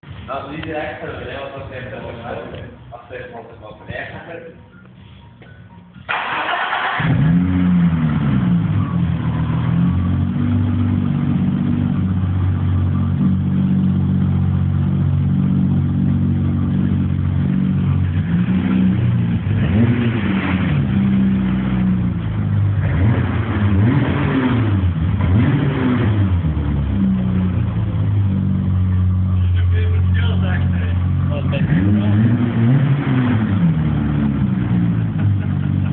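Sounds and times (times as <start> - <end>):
car engine idling and revving: 0.0 - 35.9
engine cranking: 6.0 - 9.9.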